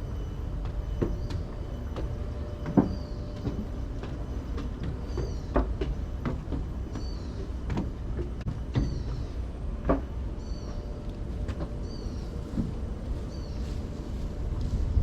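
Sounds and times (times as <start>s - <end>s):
bird chirping: 0.0s - 5.7s
steady low rumble: 0.0s - 15.0s
footsteps walking: 0.3s - 8.2s, 11.0s - 15.0s.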